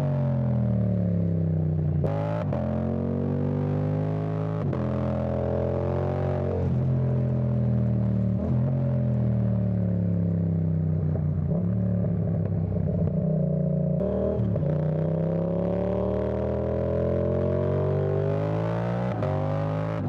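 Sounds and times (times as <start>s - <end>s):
motorcycle engine revving: 12.8s - 20.0s.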